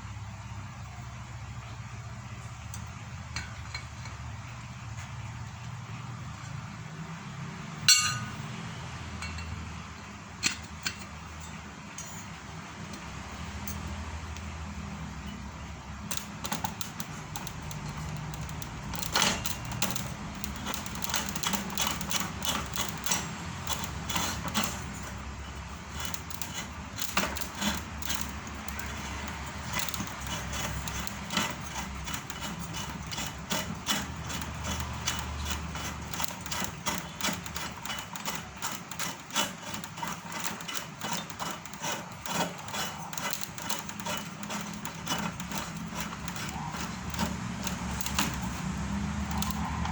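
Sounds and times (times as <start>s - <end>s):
machine parts clicking and knocking: 16.0s - 49.9s.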